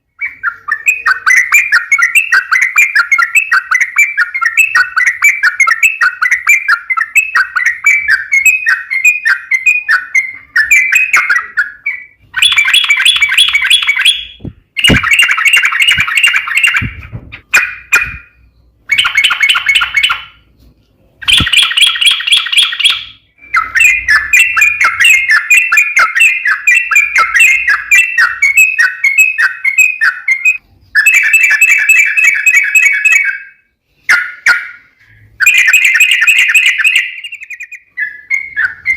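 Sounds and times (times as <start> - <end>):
bulbul chattering song: 0.0 - 20.5, 21.2 - 38.9.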